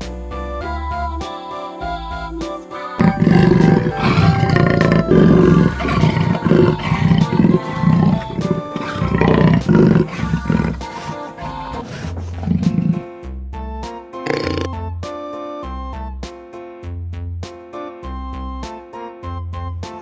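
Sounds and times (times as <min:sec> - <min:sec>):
leopard roaring: 0:03.0 - 0:13.1, 0:14.3 - 0:14.7.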